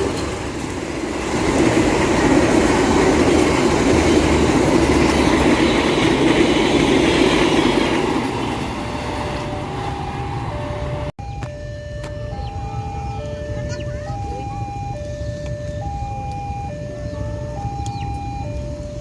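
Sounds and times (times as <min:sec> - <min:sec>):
train passing at speed: 0:00.0 - 0:11.1.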